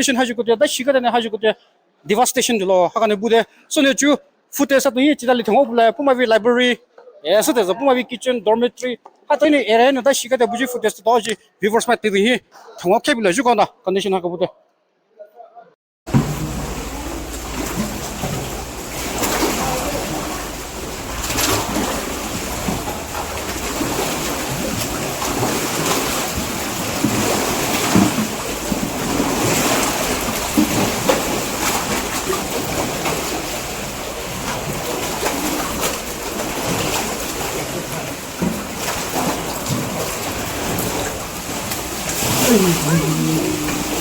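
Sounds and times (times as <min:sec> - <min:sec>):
rushing floodwater: 0:16.1 - 0:44.0
small splashes and knocks: 0:16.1 - 0:44.0.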